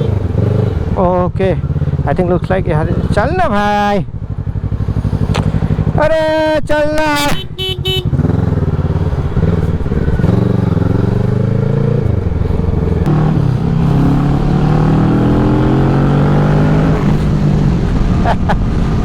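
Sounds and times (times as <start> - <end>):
motorcycle engine accelerating: 0.0 - 6.5, 7.4 - 19.0.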